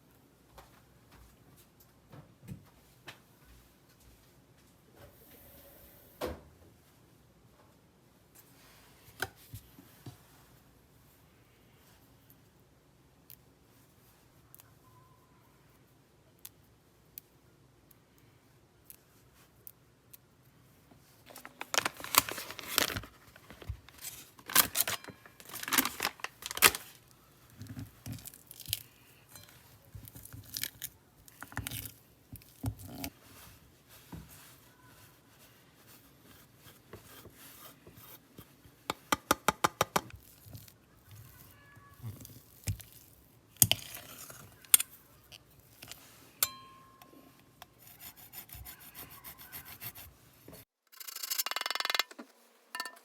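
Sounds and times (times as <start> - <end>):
tearing and crinkling noise: 21.2 - 29.2, 40.2 - 46.2.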